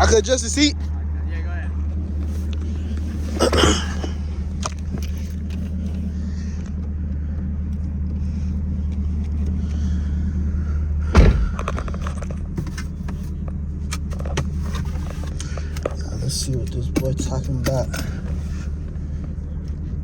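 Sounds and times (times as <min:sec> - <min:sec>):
car engine idling: 0:00.0 - 0:20.0
thumps: 0:11.1 - 0:13.2.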